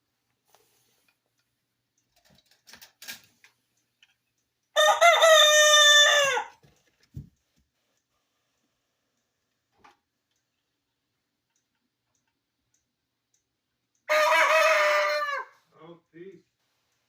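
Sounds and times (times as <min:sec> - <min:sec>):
rooster crowing: 0:04.8 - 0:06.6, 0:14.1 - 0:15.6
faint clicks: 0:11.4 - 0:14.1.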